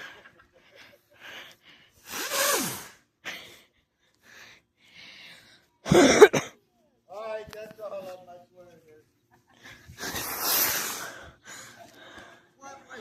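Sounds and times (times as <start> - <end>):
firework hissing with falling tone: 2.0 - 3.1, 10.0 - 11.3.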